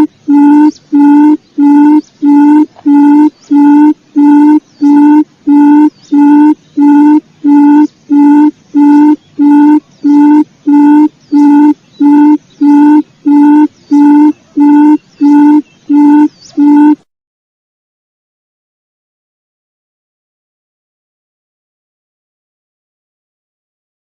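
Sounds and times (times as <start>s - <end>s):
quail call low hooting: 0.0s - 17.0s.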